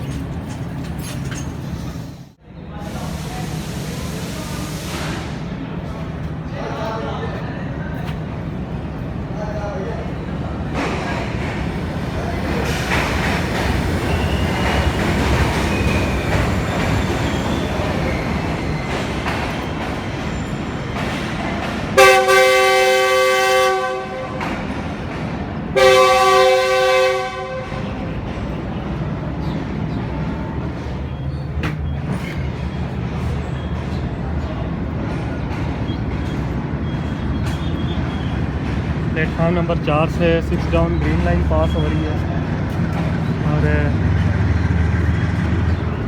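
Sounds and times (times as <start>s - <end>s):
train rumbling: 0.0s - 46.0s
diesel locomotive horn blasts: 22.0s - 24.7s, 25.8s - 28.2s.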